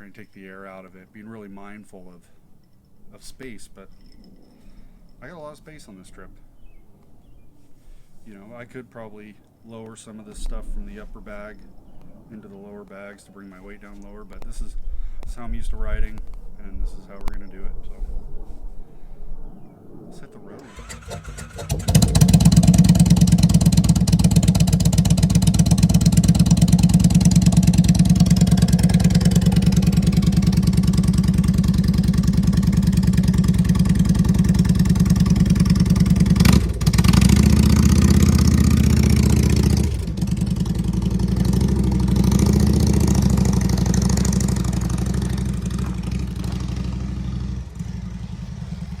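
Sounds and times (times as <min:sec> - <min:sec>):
motorcycle engine running: 0:20.8 - 0:49.0.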